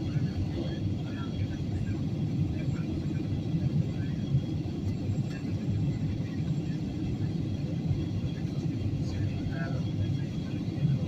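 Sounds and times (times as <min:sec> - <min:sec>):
airliner engine noise: 0:00.0 - 0:11.0.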